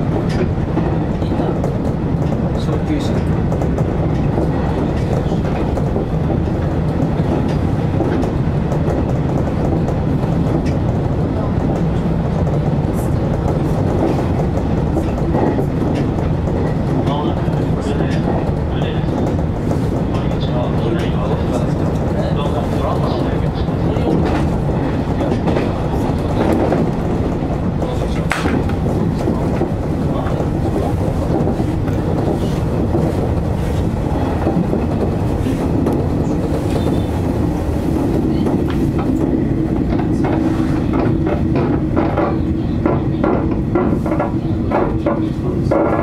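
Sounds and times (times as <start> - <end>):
wheels rumbling on rail: 0.0 - 46.0
wheels clicking over rail joints: 13.2 - 46.0.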